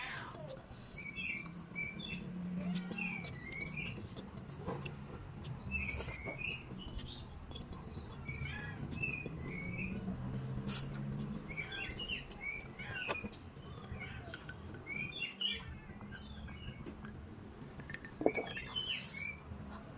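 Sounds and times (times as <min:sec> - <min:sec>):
small birds chirping: 0:00.0 - 0:19.9.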